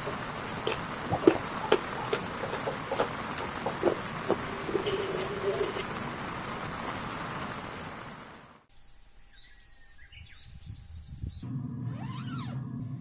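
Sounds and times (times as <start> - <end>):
birds chirping: 0.0 - 7.7
rain hissing: 0.0 - 8.7.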